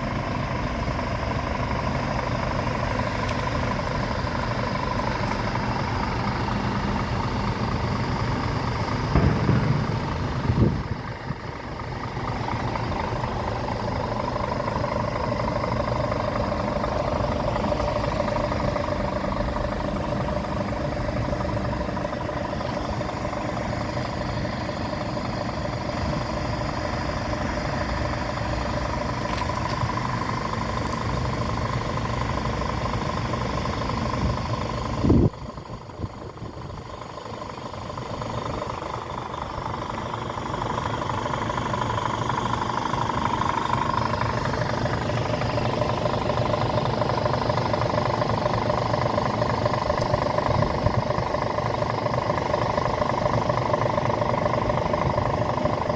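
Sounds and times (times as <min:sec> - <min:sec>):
diesel engine idling: 0:00.0 - 0:55.9
short loud burst: 0:09.1 - 0:11.0.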